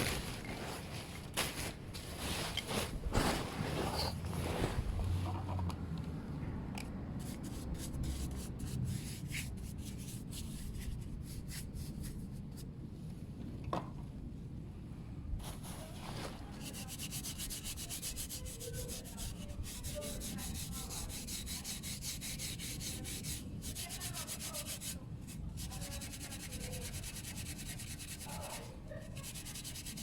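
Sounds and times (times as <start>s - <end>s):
steel wool scrubbing metal pipe: 16.6s - 30.0s.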